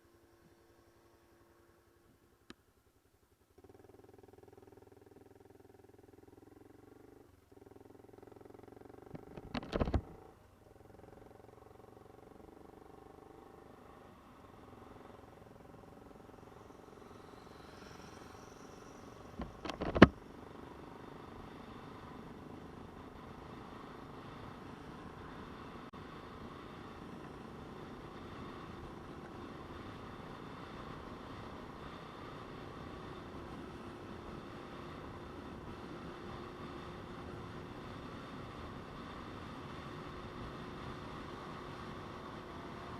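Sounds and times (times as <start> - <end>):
motorcycle engine running: 3.4 - 17.6.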